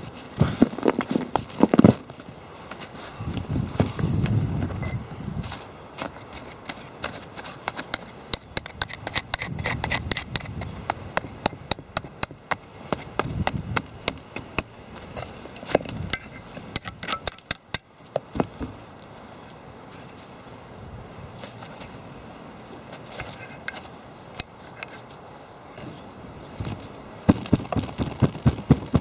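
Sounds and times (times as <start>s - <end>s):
hand tools scraping: 0.0s - 20.4s, 21.4s - 25.2s, 25.8s - 29.0s
hand tools tapping and knocking: 6.0s - 14.7s, 26.6s - 29.0s.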